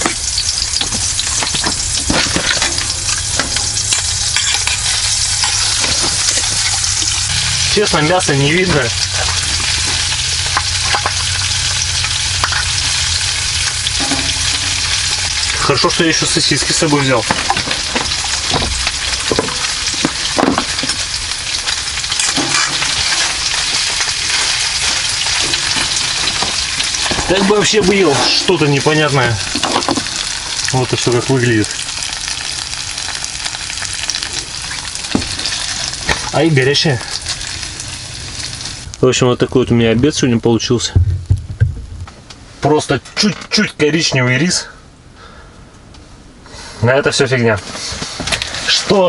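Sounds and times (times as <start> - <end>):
spattering fat popping: 0.0 - 38.9
sausages sizzling in a pan: 0.0 - 39.0.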